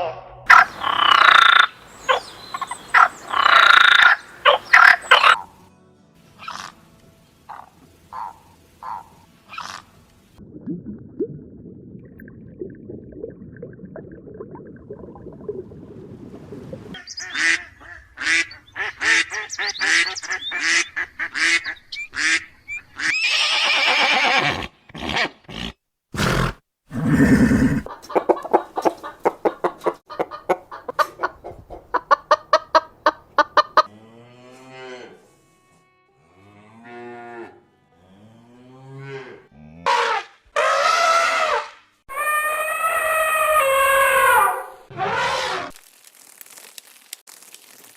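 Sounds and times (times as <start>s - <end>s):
rapid repeated animal calls: 0.5s - 5.4s.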